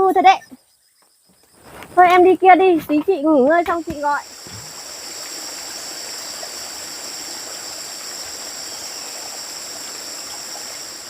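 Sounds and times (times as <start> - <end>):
high insect drone: 0.0 - 11.0
flowing water rushing: 3.8 - 11.0.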